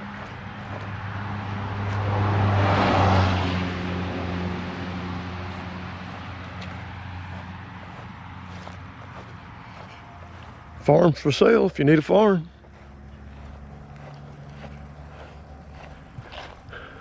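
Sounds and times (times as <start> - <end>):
low engine hum: 0.0 - 17.0
vehicle passing on road: 0.0 - 17.0.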